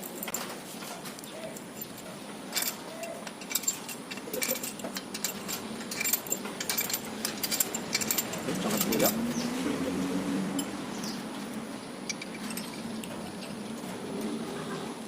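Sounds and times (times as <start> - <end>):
metallic clinks of hand tools: 0.0 - 9.4, 12.1 - 13.6.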